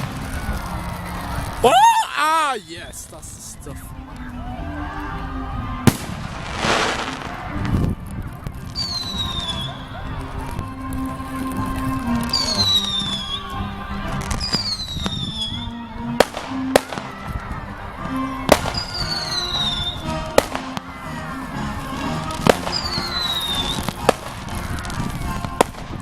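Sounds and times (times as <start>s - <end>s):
firework bangs: 0.0s - 1.9s, 5.8s - 26.0s
music: 0.0s - 26.0s
falling firework whistles: 5.9s - 7.8s, 8.7s - 9.8s, 12.2s - 13.5s, 14.3s - 17.0s, 18.5s - 20.7s, 22.4s - 25.8s.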